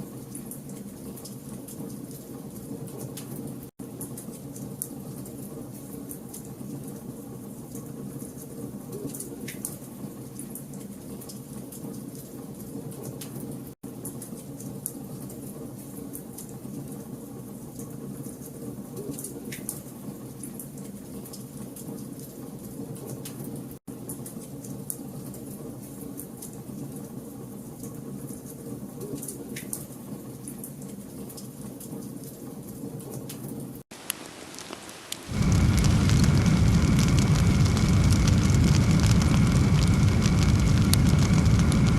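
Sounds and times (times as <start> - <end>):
wood fire crackling: 33.9 - 41.9
loud deep fire roar: 35.3 - 41.9.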